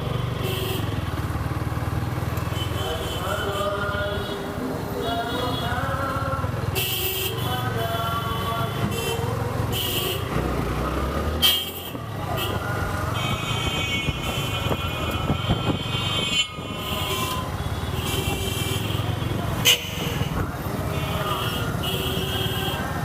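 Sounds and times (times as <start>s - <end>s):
engine and road rumble: 0.0s - 23.0s
vehicle horn honks: 11.4s - 12.6s, 13.2s - 22.8s.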